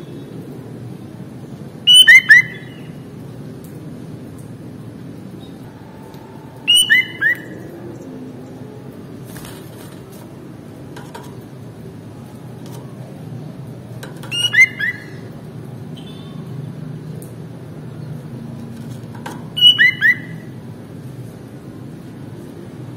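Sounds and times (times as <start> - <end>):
low background noise: 0.0 - 22.9
bird whistled calls: 1.9 - 2.9, 6.7 - 7.7, 14.3 - 15.2, 19.6 - 20.5.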